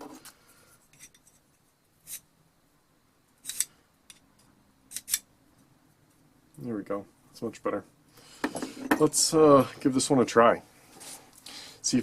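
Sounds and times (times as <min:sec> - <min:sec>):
sharpening rod scraping metal bit: 0:02.0 - 0:02.2, 0:03.4 - 0:03.7, 0:04.9 - 0:05.2.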